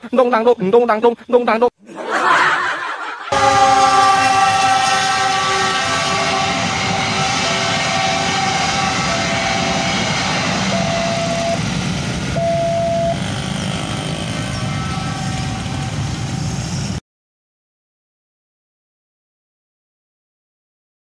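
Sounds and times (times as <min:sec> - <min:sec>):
train horn: 0:03.3 - 0:11.6, 0:12.4 - 0:16.5
crossing warning bell ringing: 0:03.3 - 0:11.7, 0:12.4 - 0:13.4, 0:14.1 - 0:16.4
train wheels rumbling on rails: 0:03.4 - 0:17.0.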